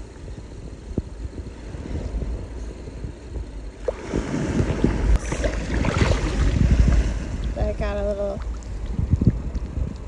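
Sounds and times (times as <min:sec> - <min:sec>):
wind buffeting microphone: 0:00.0 - 0:10.0
surf washing at shore: 0:03.8 - 0:09.8.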